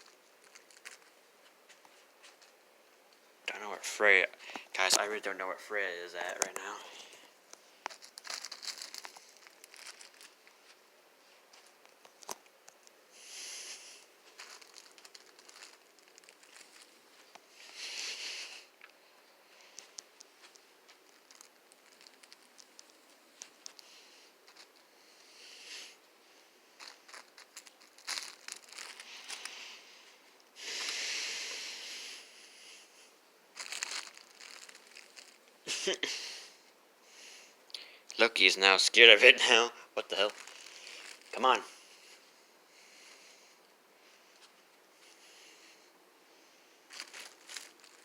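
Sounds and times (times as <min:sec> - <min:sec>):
balloon crinkling and rustling: 0:00.0 - 0:02.6, 0:06.2 - 0:25.6, 0:26.7 - 0:31.9, 0:33.5 - 0:36.0, 0:39.4 - 0:42.4, 0:46.9 - 0:48.0
short hiss: 0:13.1 - 0:14.1.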